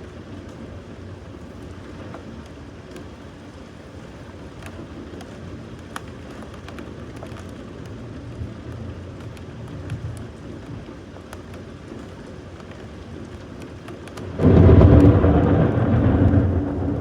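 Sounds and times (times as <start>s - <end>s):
rain falling: 0.0s - 17.0s
low rumble: 14.4s - 17.0s.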